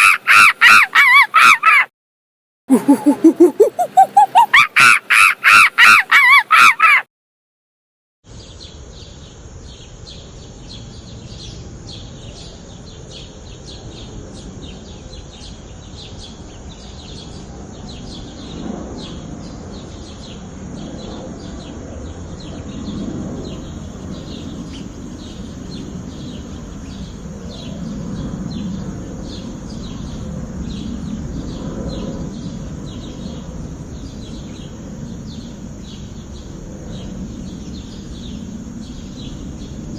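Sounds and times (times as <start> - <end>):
outdoor background hiss: 22.8 - 39.9
small birds chirping: 22.8 - 39.9.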